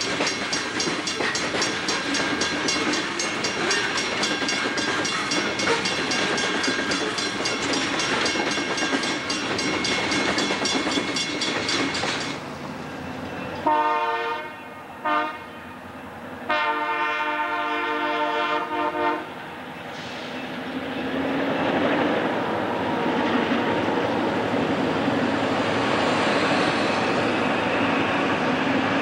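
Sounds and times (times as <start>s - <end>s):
train wheels clattering: 0.0s - 12.4s
locomotive air horn: 13.6s - 15.8s, 16.5s - 19.3s.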